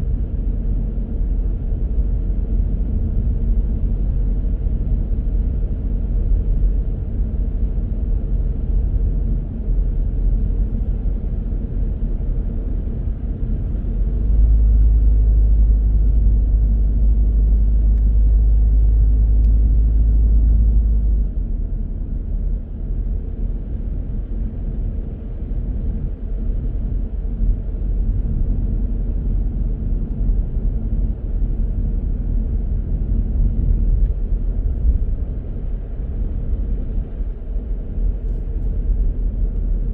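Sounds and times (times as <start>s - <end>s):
car driving low rumble: 0.0s - 39.9s.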